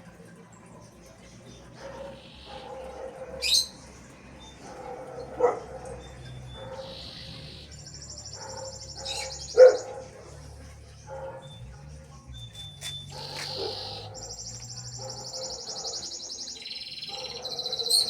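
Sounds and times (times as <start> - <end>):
birds chirping: 0.0 - 18.0
buzzy bird trill: 1.8 - 3.9, 6.1 - 10.1, 12.4 - 18.0
dog barking: 1.8 - 12.0, 13.0 - 18.0.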